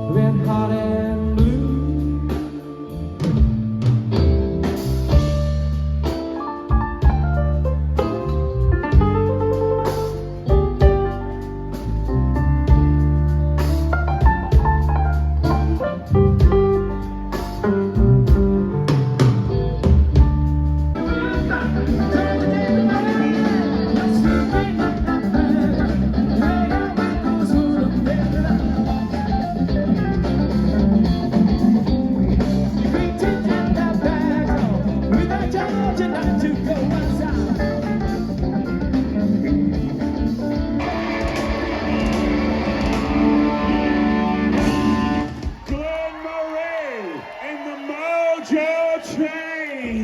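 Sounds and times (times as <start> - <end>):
blues-funk band playing: 0.0 - 46.2
lead line with bending notes: 3.2 - 45.4
band hits with drums: 39.5 - 46.2.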